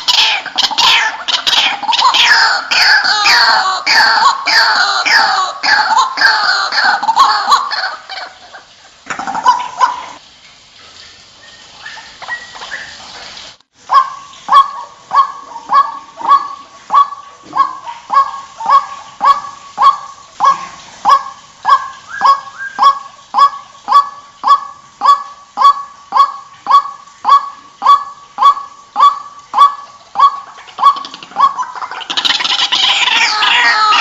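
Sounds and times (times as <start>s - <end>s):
waterhen croaking calls: 0.0s - 10.2s, 11.3s - 34.0s.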